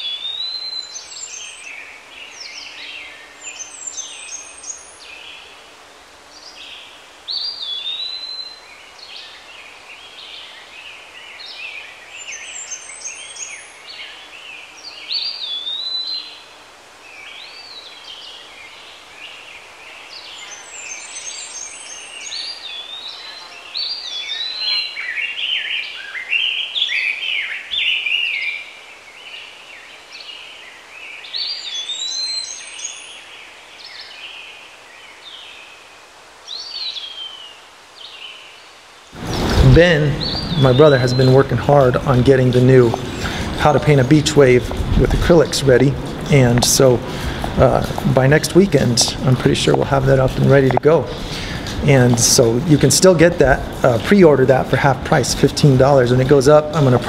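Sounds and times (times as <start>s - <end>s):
birds chirping: 0.0s - 57.0s
faint steady hiss: 0.0s - 57.0s
bird whistling short phrase: 39.3s - 41.4s.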